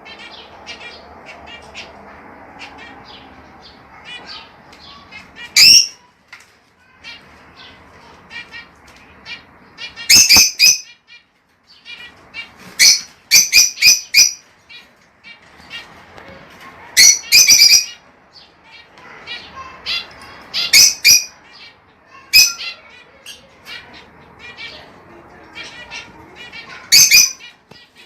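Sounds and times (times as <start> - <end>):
lovebirds chirping: 0.0 - 28.0
loud shrill bird calls: 2.6 - 6.0, 9.3 - 14.5, 17.0 - 18.5, 26.6 - 27.6.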